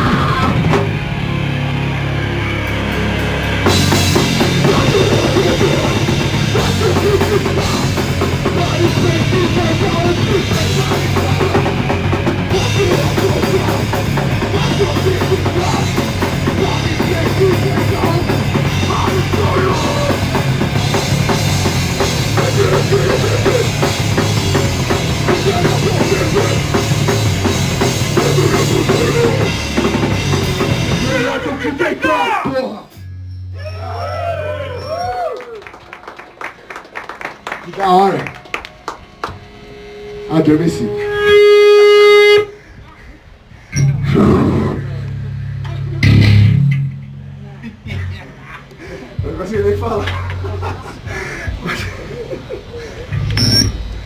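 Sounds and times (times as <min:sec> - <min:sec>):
live band playing heavy rock: 0:00.0 - 0:32.0
bass drum thumping: 0:03.7 - 0:31.4, 0:43.8 - 0:48.4.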